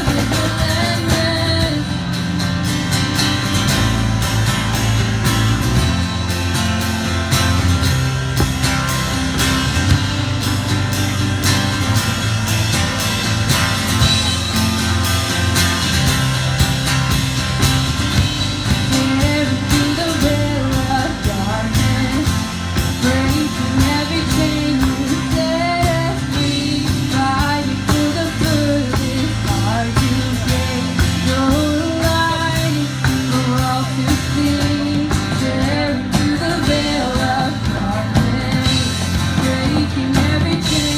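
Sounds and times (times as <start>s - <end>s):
person singing: 0.0s - 2.0s, 18.9s - 40.9s
rock band playing: 0.0s - 40.9s.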